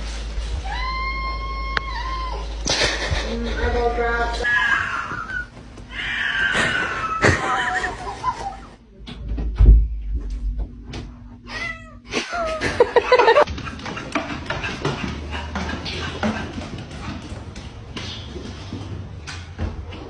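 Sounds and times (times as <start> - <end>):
cat meowing: 0.6 - 2.5.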